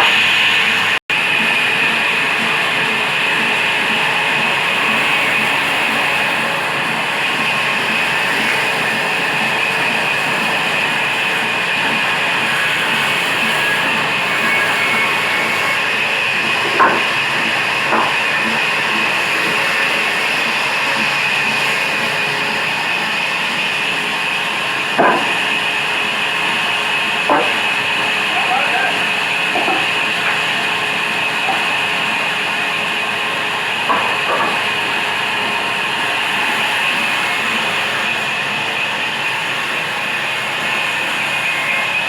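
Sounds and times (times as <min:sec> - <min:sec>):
diesel engine driving saw machine: 0:00.0 - 0:42.0
sharp knocks: 0:25.0 - 0:25.4.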